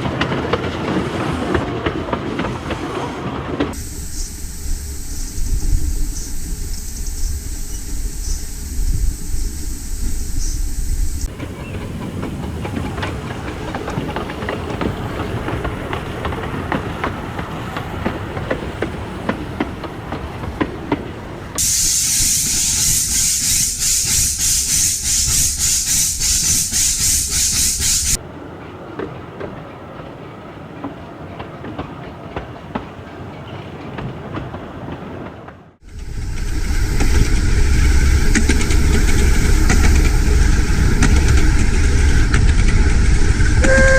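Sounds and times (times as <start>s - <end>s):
dull train rumble: 0.0s - 43.9s
loud pulsing hiss: 3.8s - 11.7s, 21.6s - 28.2s, 35.8s - 43.9s
miniature train wheels clicking: 21.6s - 28.2s.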